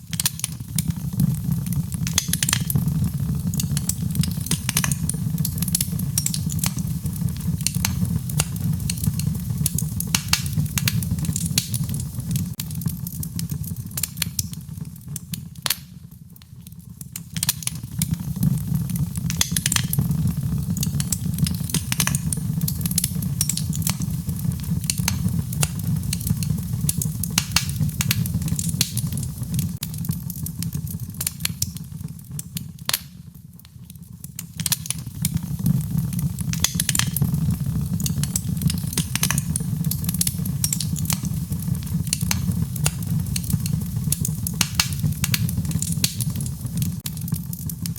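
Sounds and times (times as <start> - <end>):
fireplace crackling and popping: 0.0 - 47.9
rain: 34.6 - 47.9.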